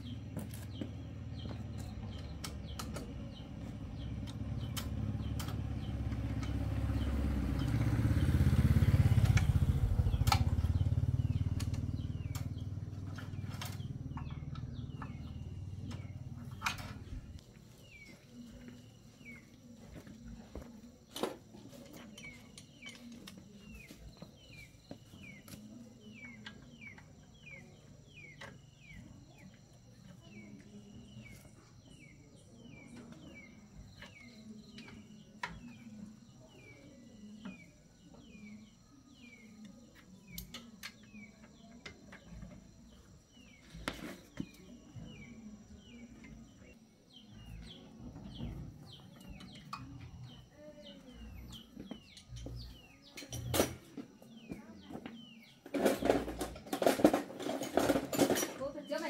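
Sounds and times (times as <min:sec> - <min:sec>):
bird chirping: 0:00.0 - 0:59.0.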